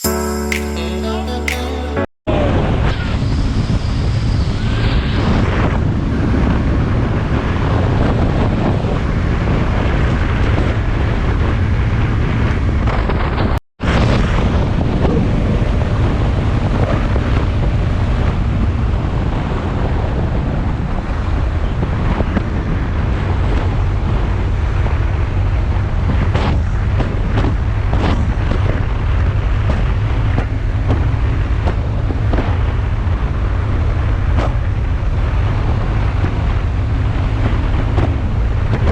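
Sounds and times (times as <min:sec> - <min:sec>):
wind buffeting microphone: 0:02.3 - 0:38.9
motorcycle road and engine noise: 0:02.4 - 0:38.9.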